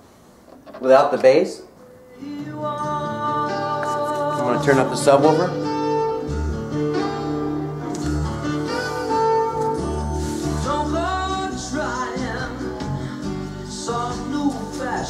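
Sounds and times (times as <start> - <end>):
pop song through stereo: 1.8 - 15.0
person singing: 1.9 - 6.3, 7.9 - 15.0
pulsing bass notes: 5.9 - 15.0.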